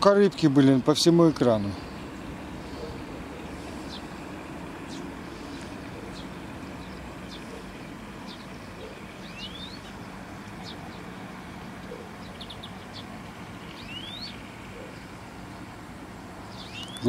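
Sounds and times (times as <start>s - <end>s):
steady outdoor rumble: 0.0s - 17.0s
small birds chirping: 0.3s - 17.0s
rising bird whistle: 8.3s - 10.0s, 13.7s - 15.1s, 16.5s - 17.0s.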